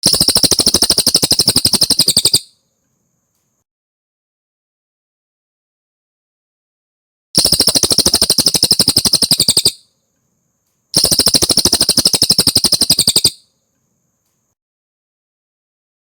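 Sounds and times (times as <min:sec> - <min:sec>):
bird trilling: 0:00.0 - 0:02.5, 0:07.4 - 0:09.8, 0:11.0 - 0:13.4.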